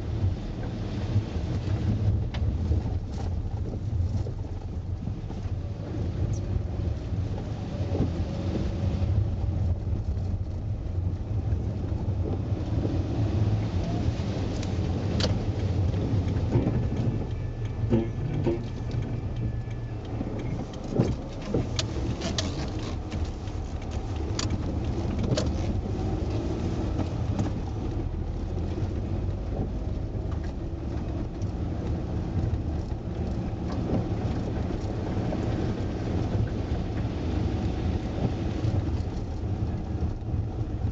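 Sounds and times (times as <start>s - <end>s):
car engine and tyres rumbling: 0.0s - 40.9s
clicks and knocks from bumps: 14.5s - 35.6s.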